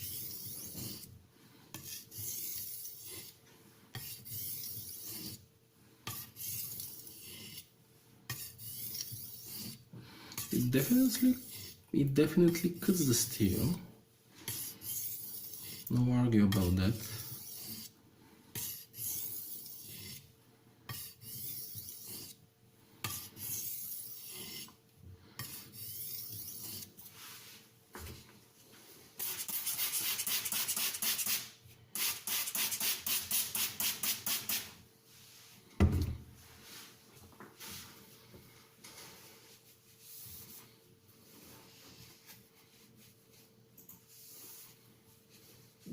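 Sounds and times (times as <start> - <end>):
knife scraping on sharpening stone: 0.0 - 1.1, 1.7 - 3.4, 4.0 - 5.4, 6.1 - 7.7, 8.3 - 9.8, 10.4 - 11.8, 14.5 - 15.9, 17.2 - 17.9, 18.6 - 20.2, 20.9 - 22.4, 23.0 - 24.7, 25.4 - 26.9
thump: 35.8 - 36.2.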